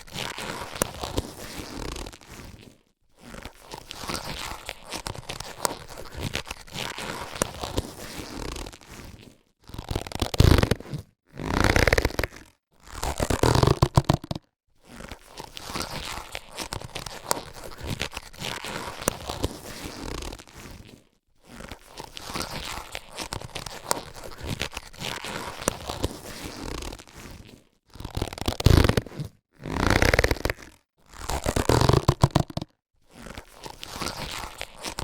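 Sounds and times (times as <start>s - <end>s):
latex gloves rubbing and crinkling: 0.0s - 35.0s
latex gloves snapping: 13.3s - 14.4s, 28.0s - 32.7s.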